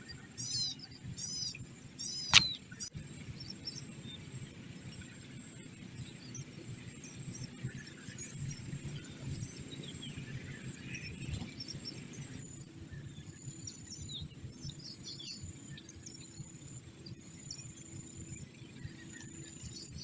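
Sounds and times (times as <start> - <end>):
small birds chirping: 0.0 - 2.6
steady high-pitched whine: 0.0 - 20.0.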